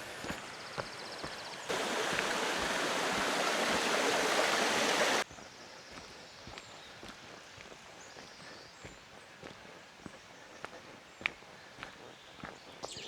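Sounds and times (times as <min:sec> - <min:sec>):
rushing stream water: 0:00.0 - 0:05.2
soft footsteps on path: 0:00.0 - 0:13.0.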